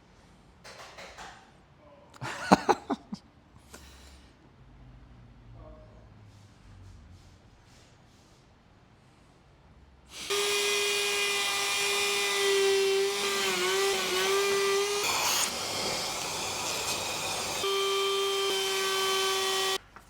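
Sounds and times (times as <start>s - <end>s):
router cutting wood: 10.1s - 19.8s
router high whine: 10.2s - 19.8s.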